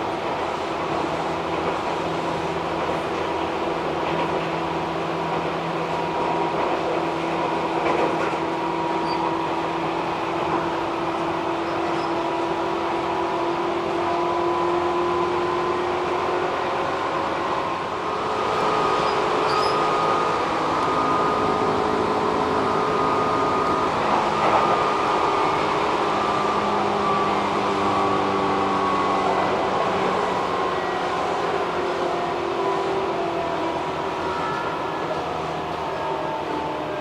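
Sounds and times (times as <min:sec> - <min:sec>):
train running noise: 0:00.0 - 0:37.0.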